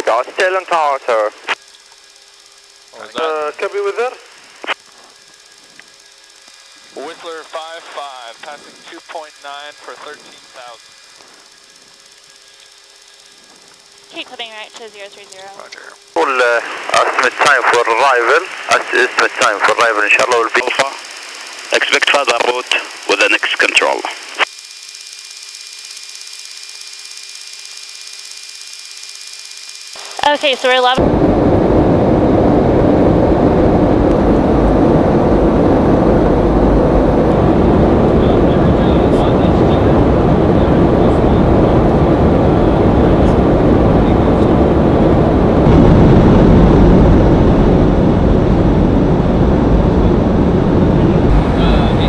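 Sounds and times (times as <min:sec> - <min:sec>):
cockpit hiss: 0:00.0 - 0:24.5
faint steady hum: 0:00.0 - 0:52.0
jet cockpit engine and airflow noise: 0:00.0 - 0:52.0.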